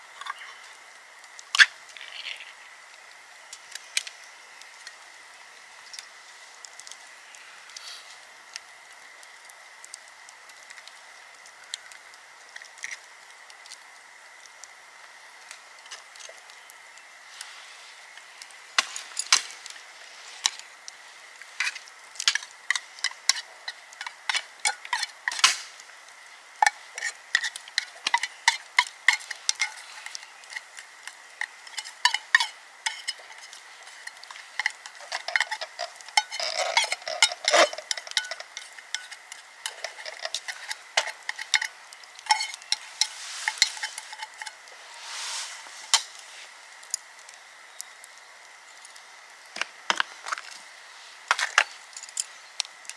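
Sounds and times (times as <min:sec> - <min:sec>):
food sizzling: 0:00.0 - 0:52.9
utensil scraping a pan: 0:26.6 - 0:46.6.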